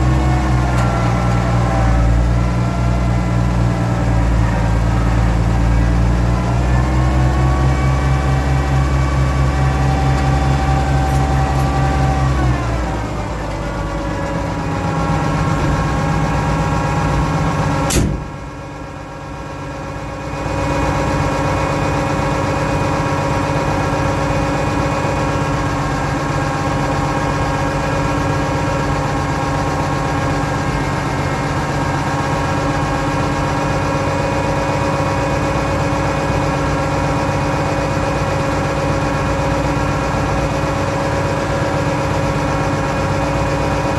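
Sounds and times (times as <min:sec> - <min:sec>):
tractor engine running: 0:00.0 - 0:43.9
sharp click: 0:17.9 - 0:18.3.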